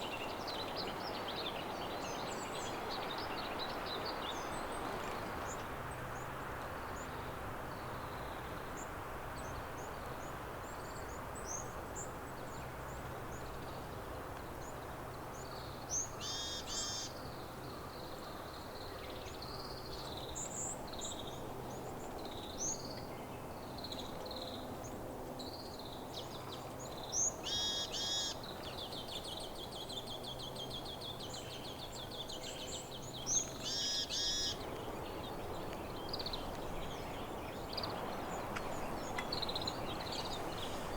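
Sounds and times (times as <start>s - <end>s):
songbirds chirping: 0.0s - 40.9s
bird trill: 33.6s - 34.6s.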